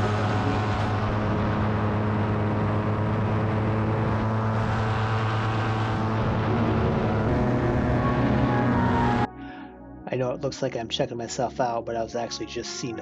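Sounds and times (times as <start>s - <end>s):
paramotor engine and propeller droning: 0.0s - 9.3s.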